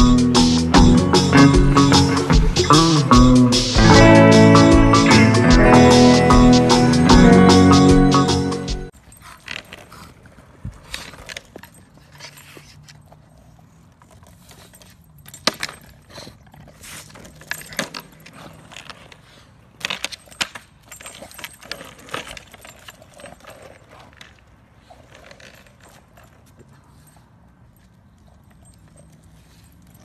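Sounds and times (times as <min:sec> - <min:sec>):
skateboard rolling on asphalt: 0:09.4 - 0:12.0, 0:16.7 - 0:20.1.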